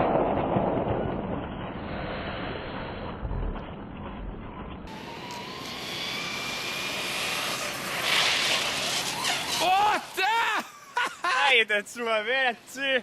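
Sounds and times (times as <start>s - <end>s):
rc truck motor whining: 4.9s - 10.2s
tyre noise: 7.4s - 10.6s.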